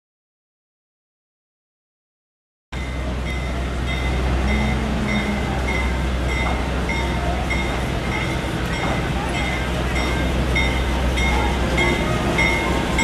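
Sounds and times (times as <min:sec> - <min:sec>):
train rumbling: 0:02.8 - 0:13.0.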